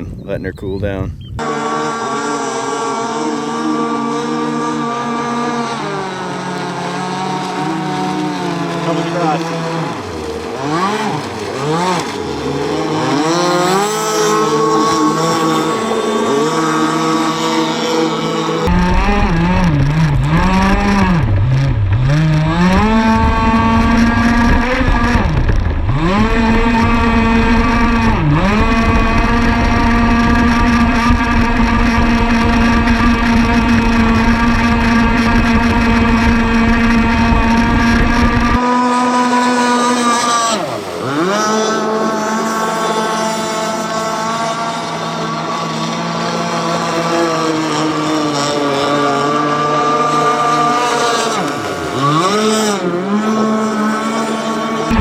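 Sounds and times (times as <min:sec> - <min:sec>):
model boat engine running: 0:01.4 - 0:55.0.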